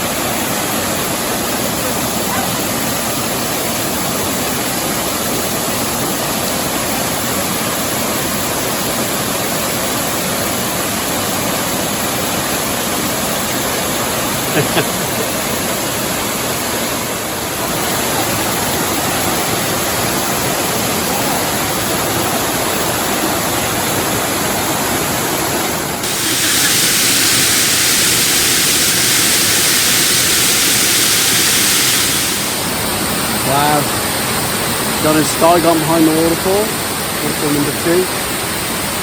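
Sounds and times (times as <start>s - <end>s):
waterfall rushing: 23.9s - 36.0s.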